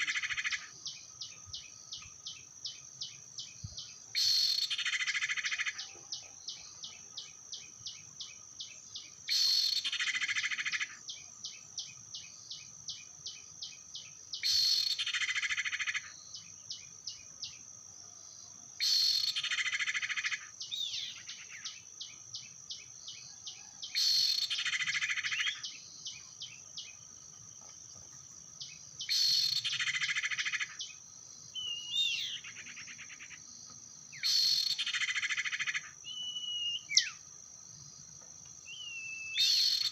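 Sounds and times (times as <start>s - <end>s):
high insect whine: 0.0s - 39.9s
whistled bird notes: 31.5s - 33.3s, 34.2s - 37.2s, 38.6s - 39.9s.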